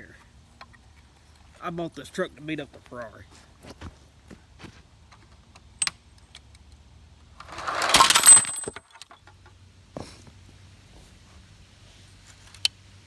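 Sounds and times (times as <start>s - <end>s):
toy cars crashing: 7.4s - 9.2s.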